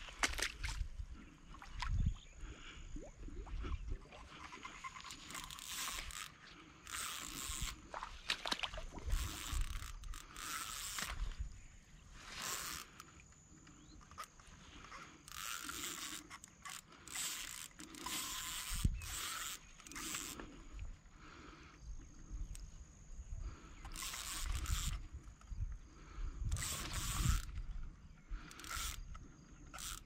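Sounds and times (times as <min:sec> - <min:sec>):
fishing reel ratcheting: 0:04.3 - 0:20.8, 0:23.6 - 0:30.0.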